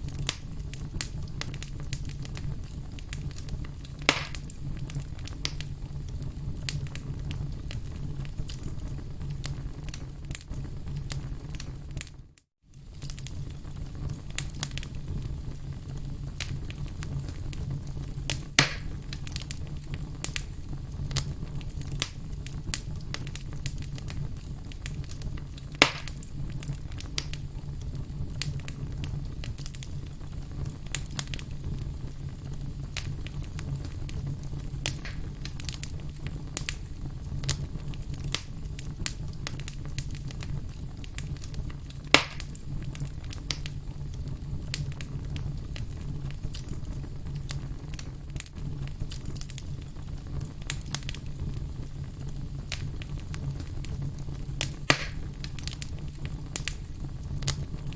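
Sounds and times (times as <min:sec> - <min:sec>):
sharp loud pops of fire: 0:00.0 - 0:05.7, 0:18.3 - 0:21.3, 0:21.9 - 0:27.4, 0:33.0 - 0:37.6, 0:38.2 - 0:43.8, 0:54.6 - 0:57.9
firewood burning with crackles: 0:00.0 - 0:57.9.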